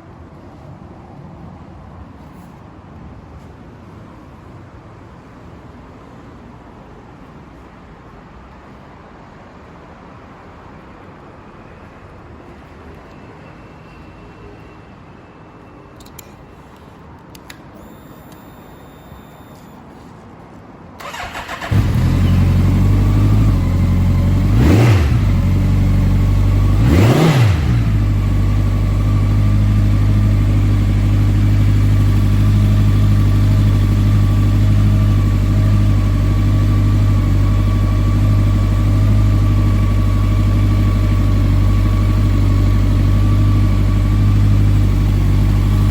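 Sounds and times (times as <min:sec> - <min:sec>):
motorcycle engine idling: 0:21.0 - 0:26.8, 0:27.4 - 0:45.9
motorcycle engine revving: 0:21.0 - 0:45.9
motorcycle engine starting: 0:21.0 - 0:45.9.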